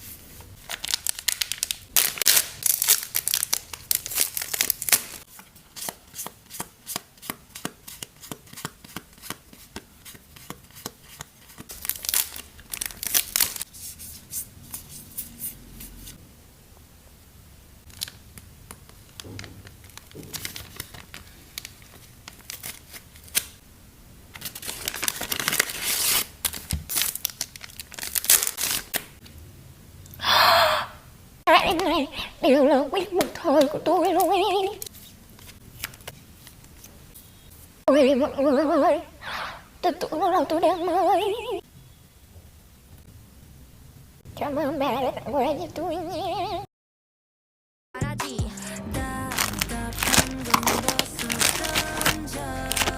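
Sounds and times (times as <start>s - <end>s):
packaging tearing and crinkling: 0.6s - 7.0s, 11.4s - 13.7s, 17.9s - 23.6s, 24.3s - 29.2s, 49.2s - 52.9s.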